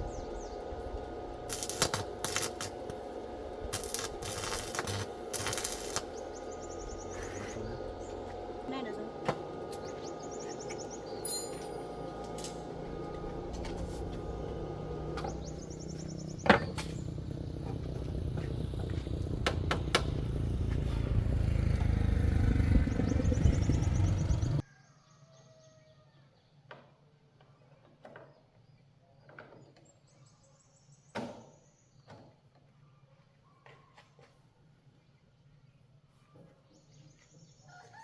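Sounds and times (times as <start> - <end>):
vehicle engine running: 0.0 - 24.6.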